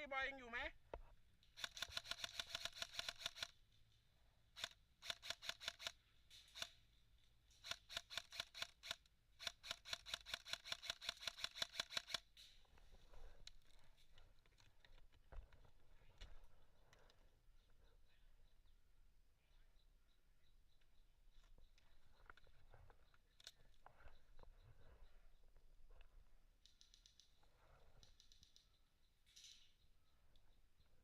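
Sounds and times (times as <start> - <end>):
airsoft gun firing bursts: 1.6 - 3.5, 4.6 - 6.7, 7.6 - 12.2.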